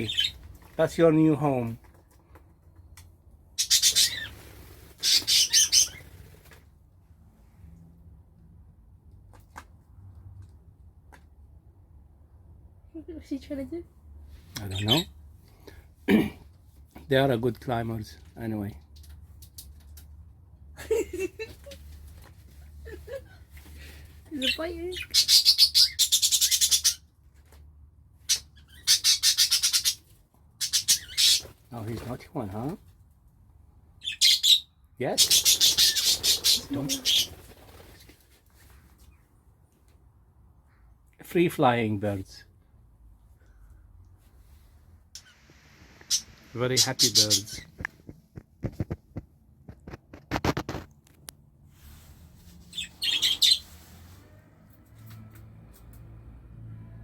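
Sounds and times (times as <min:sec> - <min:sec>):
budgerigars chattering: 0:03.6 - 0:04.4, 0:05.0 - 0:06.0, 0:28.3 - 0:30.0, 0:30.6 - 0:31.5, 0:35.2 - 0:37.4, 0:46.1 - 0:47.8, 0:52.8 - 0:53.6.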